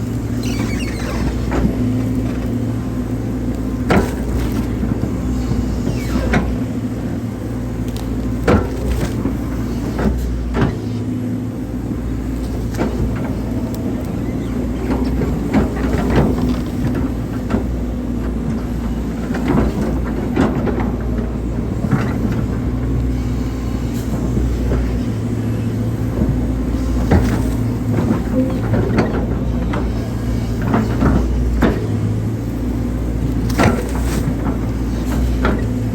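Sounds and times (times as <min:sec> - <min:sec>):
diesel engine running under load: 0:00.0 - 0:35.9
excavator bucket knocks and clanks: 0:26.1 - 0:32.2.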